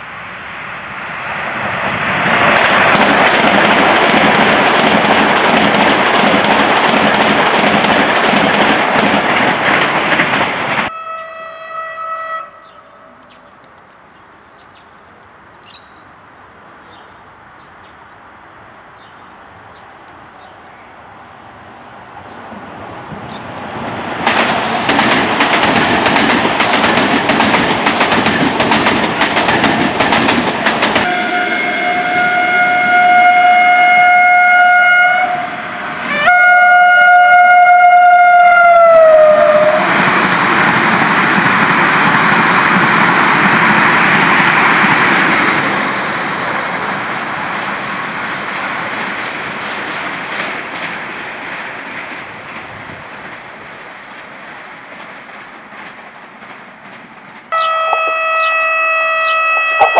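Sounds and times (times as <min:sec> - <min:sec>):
train wheels clicking over rail joints: 0:01.8 - 0:10.9, 0:23.1 - 0:31.1, 0:47.6 - 0:57.6
train horn blasts: 0:10.9 - 0:13.2, 0:31.0 - 0:39.9, 0:57.5 - 0:59.9.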